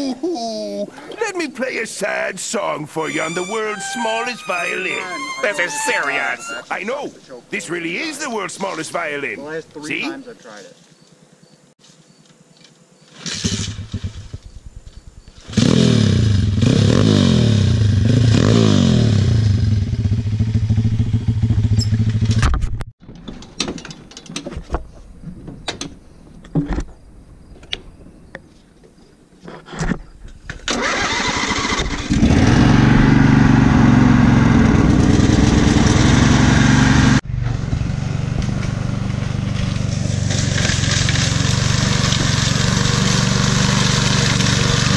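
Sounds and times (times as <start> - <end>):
small engine revving: 13.2 - 14.5, 15.3 - 22.4, 30.7 - 44.9.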